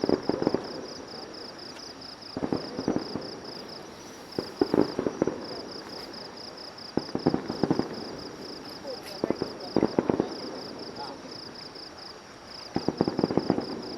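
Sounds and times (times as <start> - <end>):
fireworks bangs and crackles: 0.0 - 13.9
insect chirping: 0.0 - 13.9.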